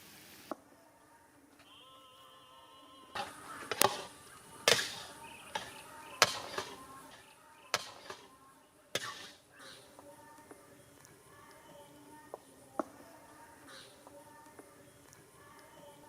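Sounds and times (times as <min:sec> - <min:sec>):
utensils knocking and clattering: 0:04.7 - 0:08.3, 0:09.0 - 0:09.4.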